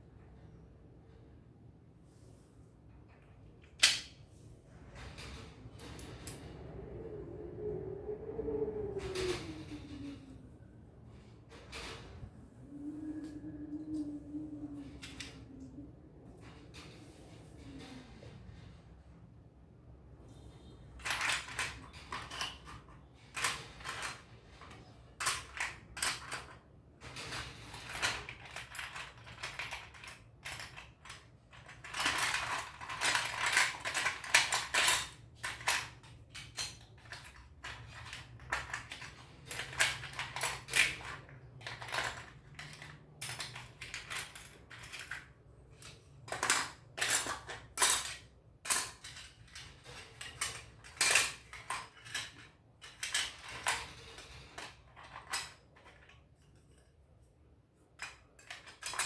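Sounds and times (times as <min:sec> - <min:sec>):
plastic kit parts clicking: 0:03.6 - 0:04.2.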